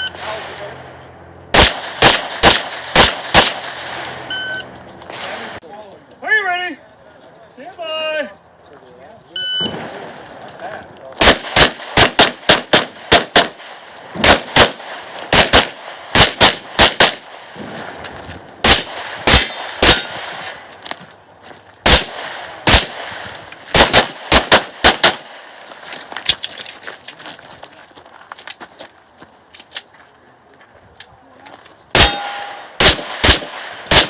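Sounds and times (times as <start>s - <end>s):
pistol shots: 1.5s - 4.2s, 11.2s - 17.6s, 18.6s - 20.6s, 21.8s - 25.6s, 31.9s - 34.0s.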